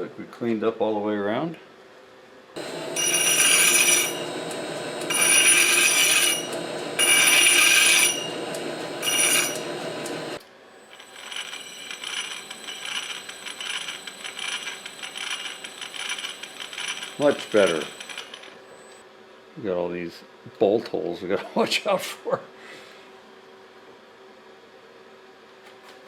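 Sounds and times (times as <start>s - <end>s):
high-pitched cutting squeal: 2.6s - 19.0s
metal lathe running: 2.6s - 19.0s
rapid clattering of gears: 11.0s - 18.6s.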